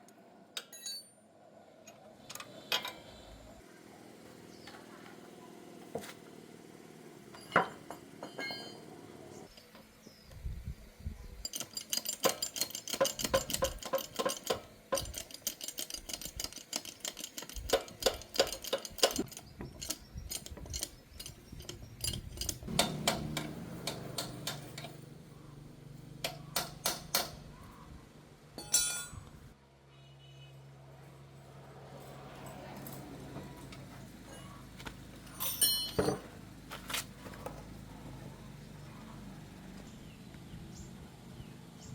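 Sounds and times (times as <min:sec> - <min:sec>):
metal tools clinking: 0:00.6 - 0:01.2, 0:07.3 - 0:08.9, 0:11.4 - 0:25.1, 0:28.6 - 0:29.4, 0:33.7 - 0:36.4.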